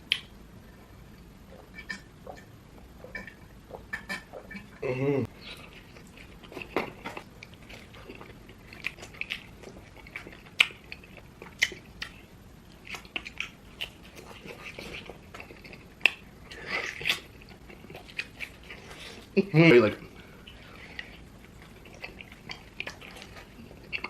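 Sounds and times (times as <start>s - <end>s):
wet mouth clicks and smacks: 0.1s - 0.3s
chewing and biting: 5.5s - 19.0s, 20.5s - 24.0s.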